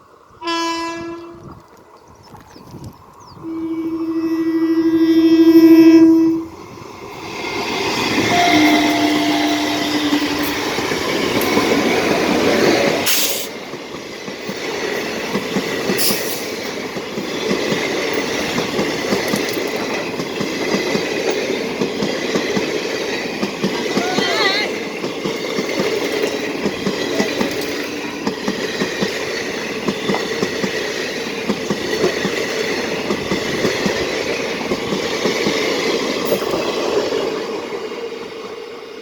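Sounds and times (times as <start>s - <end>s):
train rumble: 0.0s - 39.0s
train horn blasts: 0.4s - 1.5s, 3.4s - 6.6s, 8.2s - 10.6s
train wheels clattering: 7.0s - 38.6s.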